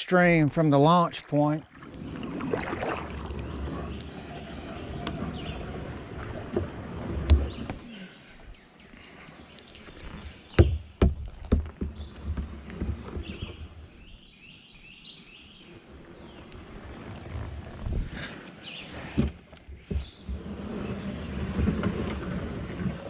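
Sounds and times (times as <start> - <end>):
kayak paddling: 0.3 - 23.0
hollow knocks: 10.6 - 13.6.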